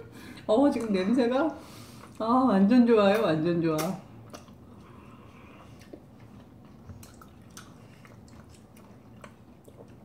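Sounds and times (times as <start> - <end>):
chewing juicy citrus: 4.0 - 10.0.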